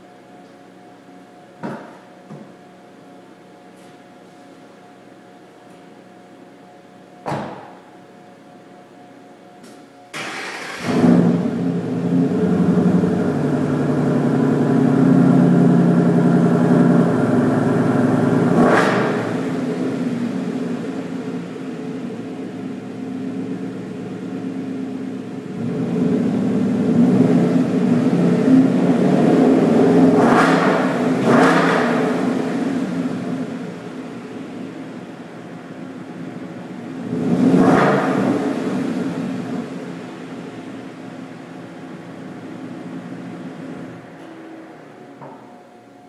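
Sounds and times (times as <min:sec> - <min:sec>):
car engine starting and idling: 0:10.1 - 0:45.6
engine revving: 0:10.2 - 0:20.7, 0:25.6 - 0:33.6, 0:37.0 - 0:39.6.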